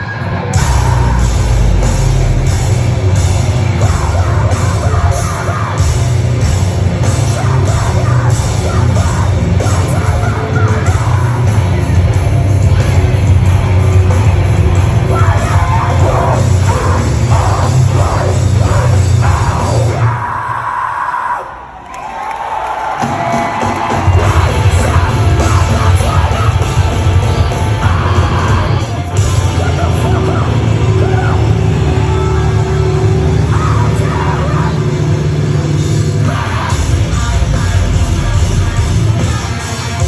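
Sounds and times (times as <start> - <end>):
heavy rock band playing: 0.0 - 20.5, 22.8 - 40.0
shouted vocals: 12.7 - 35.5.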